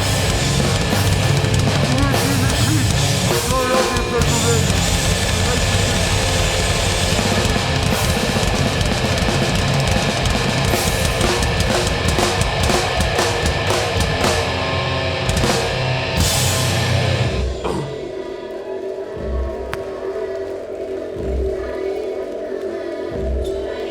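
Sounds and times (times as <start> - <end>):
hardcore band playing loud: 0.0 - 18.0.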